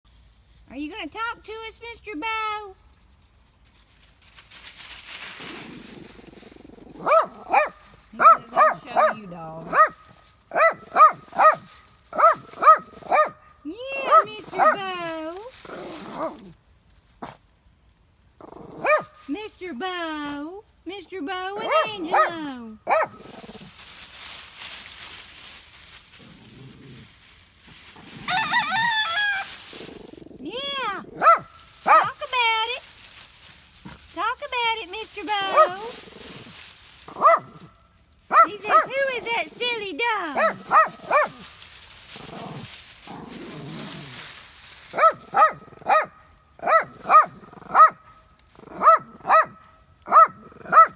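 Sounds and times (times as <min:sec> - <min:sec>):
low rustling noise: 0:00.1 - 0:50.9
dog barking: 0:07.0 - 0:13.4, 0:14.0 - 0:14.8, 0:18.8 - 0:19.1, 0:21.6 - 0:23.2, 0:31.2 - 0:32.2, 0:35.5 - 0:35.9, 0:37.1 - 0:37.6, 0:38.3 - 0:38.9, 0:40.4 - 0:41.4, 0:44.9 - 0:48.0, 0:48.7 - 0:50.9
rooster crowing: 0:28.2 - 0:29.5.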